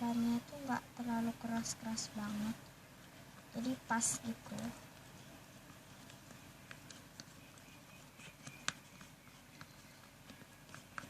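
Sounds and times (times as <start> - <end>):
slime being stirred with clicks: 3.0 - 11.0.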